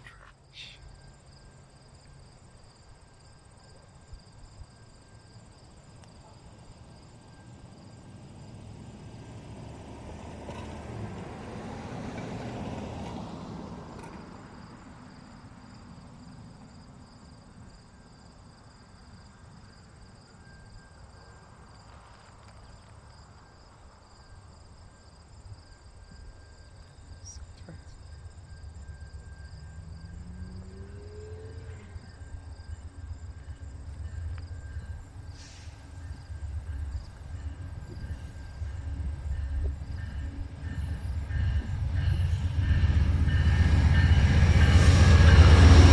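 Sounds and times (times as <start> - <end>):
train rumble approaching: 0.0 - 45.9
insects trilling: 14.5 - 45.9.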